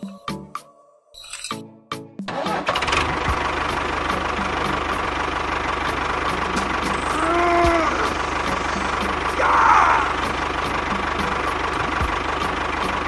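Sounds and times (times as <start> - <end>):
engine idling: 2.3 - 13.0.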